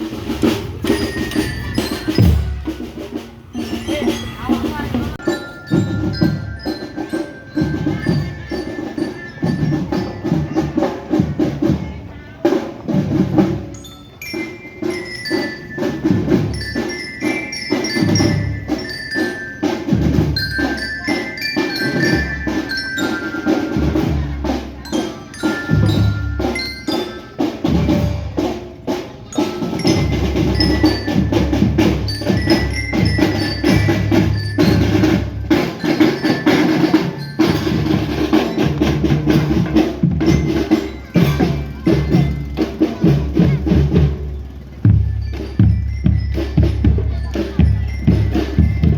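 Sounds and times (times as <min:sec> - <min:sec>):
snare drum: 0:00.0 - 0:04.2
bell lyra melody: 0:00.4 - 0:11.8, 0:12.9 - 0:48.9.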